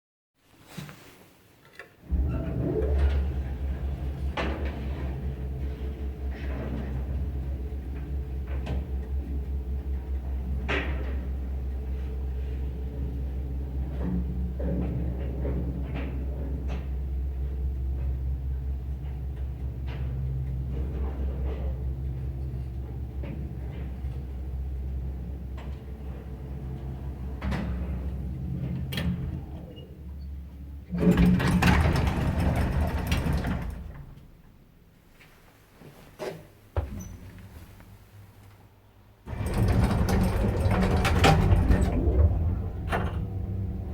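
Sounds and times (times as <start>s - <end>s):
sliding doors rattling open: 2.1s - 9.1s, 30.9s - 34.4s, 39.2s - 43.9s
elevator motor humming: 2.1s - 13.8s, 17.2s - 34.4s, 39.2s - 43.9s
lift motor humming: 30.9s - 34.3s, 39.3s - 43.9s
elevator clunks: 30.9s - 34.4s, 39.3s - 43.9s.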